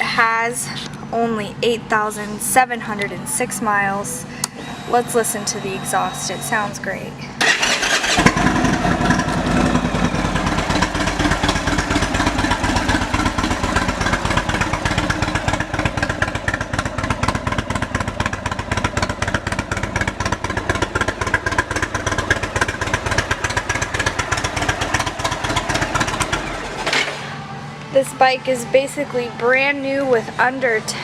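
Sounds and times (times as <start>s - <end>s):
motorcycle engine idling: 7.4s - 27.5s.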